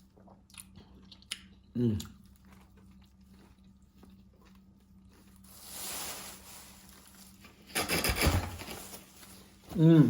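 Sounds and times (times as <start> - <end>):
chewing with mouth clicks: 0.1 - 5.4.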